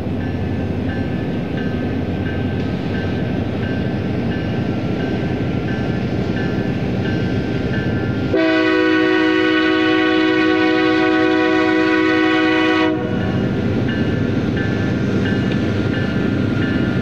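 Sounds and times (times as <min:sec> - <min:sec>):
passing train rumble: 0:00.0 - 0:17.0
locomotive air horn blast: 0:08.3 - 0:13.2.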